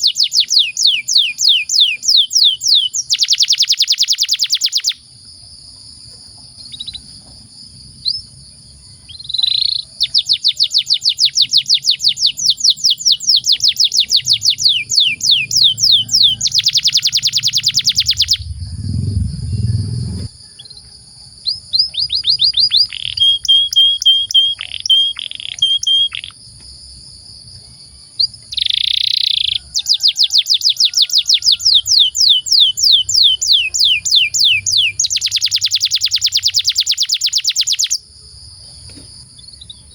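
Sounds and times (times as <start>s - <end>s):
canary singing: 0.0s - 5.0s, 6.2s - 7.2s, 8.0s - 20.8s, 21.4s - 26.4s, 28.2s - 38.0s
dull low thump: 18.1s - 20.4s.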